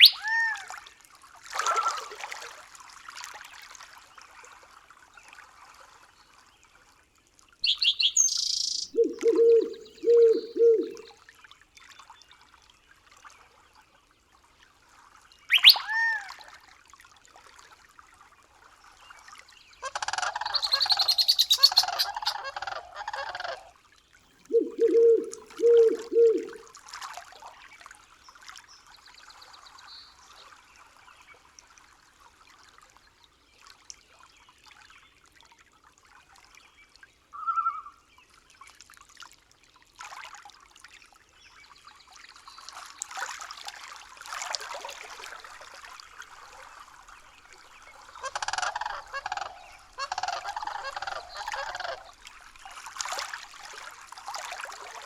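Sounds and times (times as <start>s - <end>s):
scratchy bird calling: 0.0s - 0.2s, 7.6s - 11.0s, 15.5s - 15.9s, 19.9s - 23.5s, 48.2s - 52.1s
low hooting bird calls: 0.0s - 0.4s, 7.6s - 11.1s, 15.5s - 16.2s, 20.0s - 23.7s, 24.4s - 26.6s, 48.1s - 52.2s.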